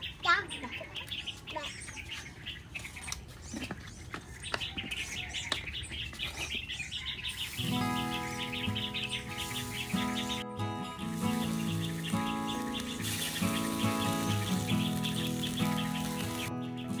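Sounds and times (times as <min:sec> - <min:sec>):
small birds chirping: 0:00.0 - 0:17.0
background music with sustained notes: 0:07.6 - 0:17.0.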